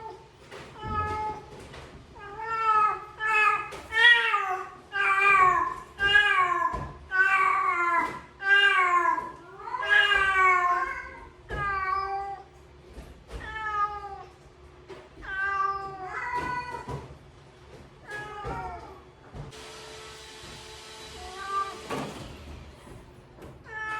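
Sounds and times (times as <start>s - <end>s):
cat meowing: 21.2s - 21.9s, 23.6s - 23.9s.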